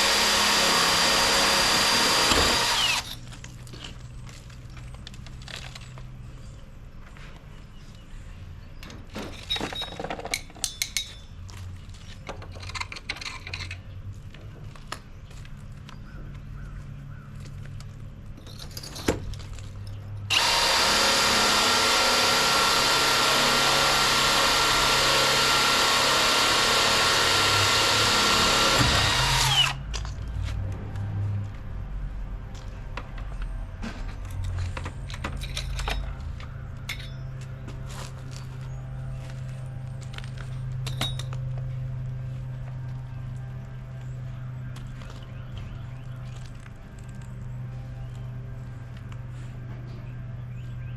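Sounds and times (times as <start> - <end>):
power drill boring into brick: 0.0 - 3.2, 20.3 - 29.8.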